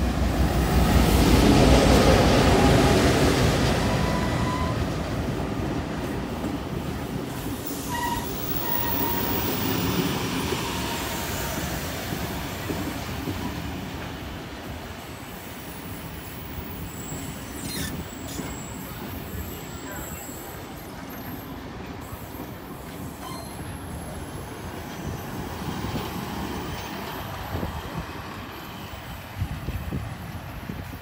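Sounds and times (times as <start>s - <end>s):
diesel locomotive engine: 0.0s - 31.0s
wheels rumbling on rail: 0.0s - 31.0s
high wheel squeals: 3.9s - 4.9s, 7.7s - 11.7s, 16.2s - 26.0s.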